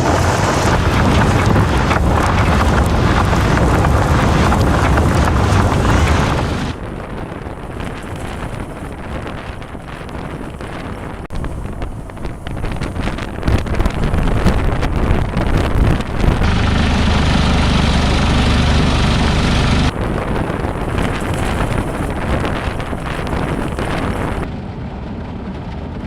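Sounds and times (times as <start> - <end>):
vehicle driving: 0.0 - 6.8, 16.2 - 20.2
wind buffeting microphone: 0.0 - 26.0
steady low hum: 16.2 - 20.8.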